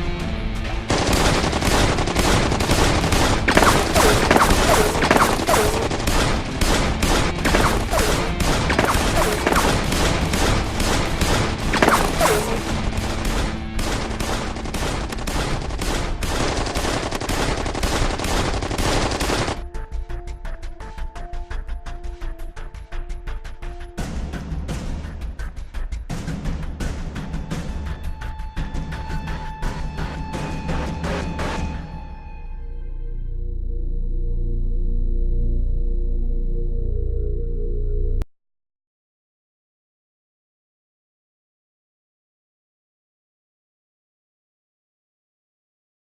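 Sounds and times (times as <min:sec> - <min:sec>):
background music: 0:00.0 - 0:38.2
rapid gunfire: 0:00.9 - 0:19.7.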